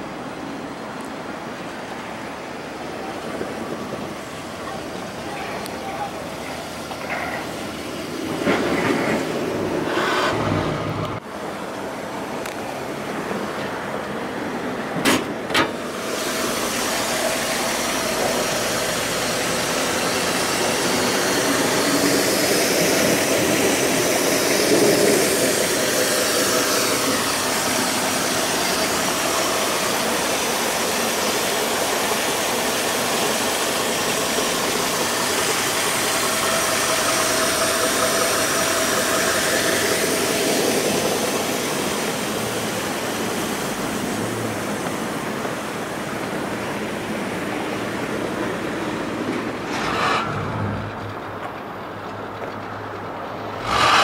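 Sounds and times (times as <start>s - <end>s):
car engine idling: 15.8s - 46.8s.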